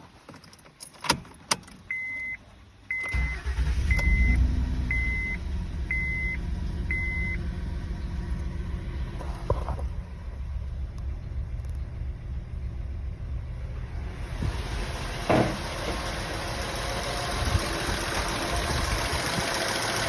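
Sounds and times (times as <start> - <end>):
car engine starting and idling: 1.0 - 20.0
car warning chime beeping: 1.9 - 7.5.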